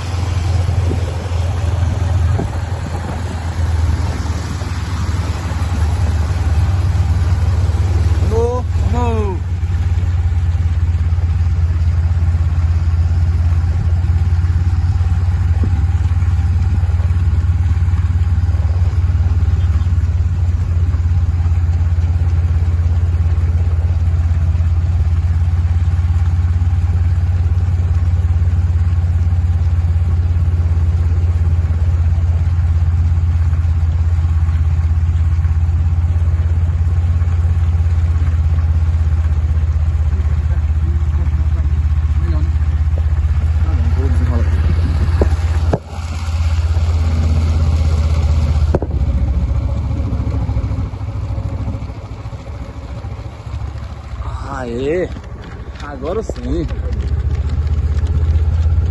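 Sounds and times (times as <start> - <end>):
vehicle engine droning: 0.0 - 58.9.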